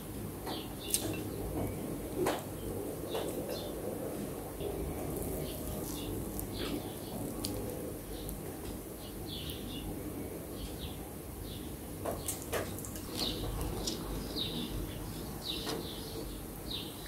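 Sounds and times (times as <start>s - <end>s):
low steady hum: 1.1s - 12.0s
small birds chirping: 4.6s - 8.4s, 9.0s - 17.0s.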